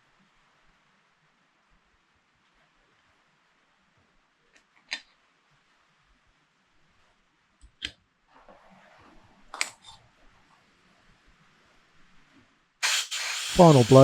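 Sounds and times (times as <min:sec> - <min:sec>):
compressed air hiss: 0:12.8 - 0:14.0.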